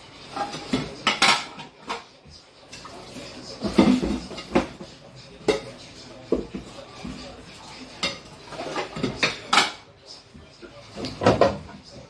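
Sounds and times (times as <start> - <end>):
hard objects clattering: 2.7 - 9.9.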